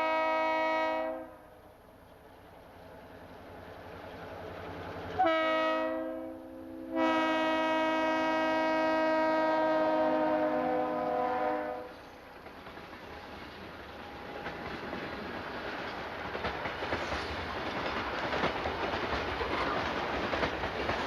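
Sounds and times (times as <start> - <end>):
locomotive air horn blasts: 0.0 - 1.5, 5.2 - 12.0
train wheel noise: 0.0 - 6.2, 7.0 - 21.0.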